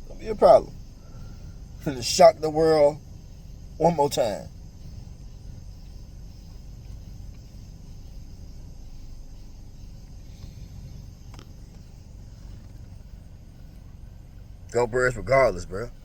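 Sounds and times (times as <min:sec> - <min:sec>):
faint hiss: 0:00.0 - 0:16.0
low background rumble: 0:00.0 - 0:16.0.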